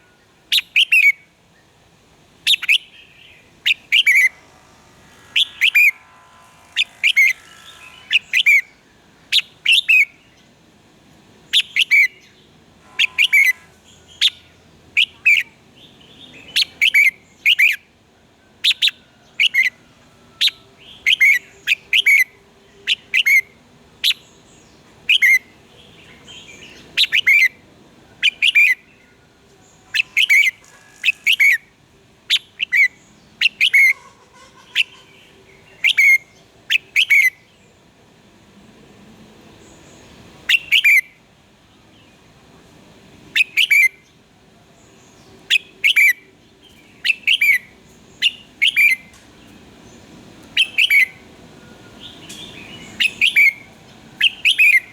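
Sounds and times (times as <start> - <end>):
bulbul singing: 2.5 - 10.5, 11.5 - 17.8, 29.6 - 37.5, 45.0 - 54.9.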